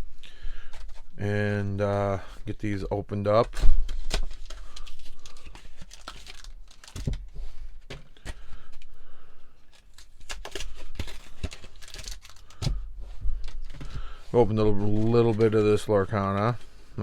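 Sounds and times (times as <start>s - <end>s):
foil wrappers tearing and crinkling: 3.6s - 7.2s, 9.6s - 12.8s.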